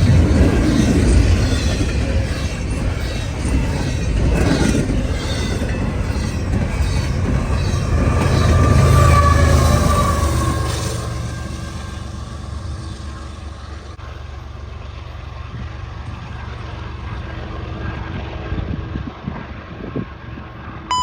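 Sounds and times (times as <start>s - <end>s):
wheels squealing: 0.0s - 14.0s
train wheels rumbling on rail: 0.0s - 20.9s.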